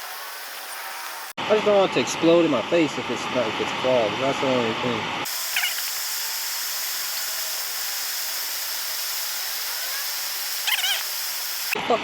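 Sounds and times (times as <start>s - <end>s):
gas stove burner hissing: 5.3s - 11.8s.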